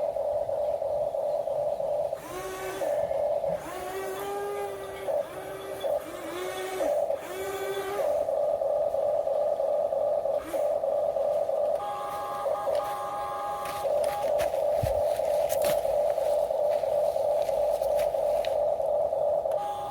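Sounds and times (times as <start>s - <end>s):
higher-pitched motor whine: 2.2s - 8.7s, 10.3s - 19.9s
motor whine rising and falling: 2.2s - 9.1s
electric motors whining: 2.2s - 19.9s.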